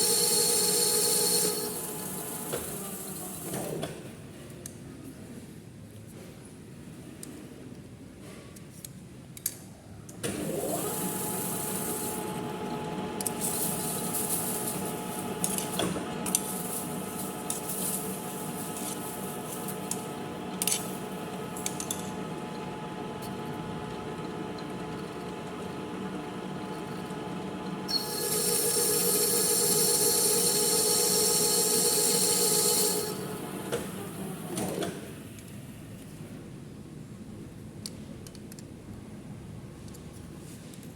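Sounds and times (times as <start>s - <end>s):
metal lathe humming: 0.0s - 3.2s, 10.5s - 34.7s
high-pitched ringing cut: 27.9s - 33.2s.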